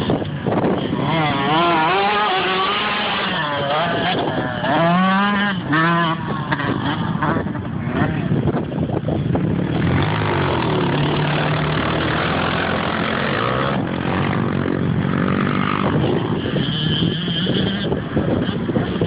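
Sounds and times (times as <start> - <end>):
dirt bike engine revving: 0.0 - 8.3, 9.4 - 19.0.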